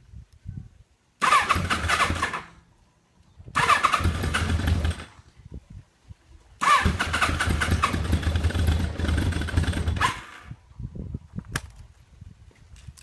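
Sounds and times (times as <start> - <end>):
motorcycle starter cranking: 1.2 - 2.6, 3.5 - 5.2, 6.6 - 10.6.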